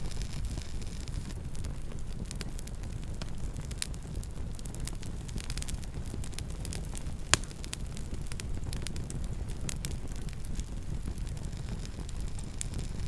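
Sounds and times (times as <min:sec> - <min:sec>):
campfire low rumble: 0:00.0 - 0:13.0
fire crackles: 0:00.0 - 0:13.0
loud fire pop: 0:05.4 - 0:13.0.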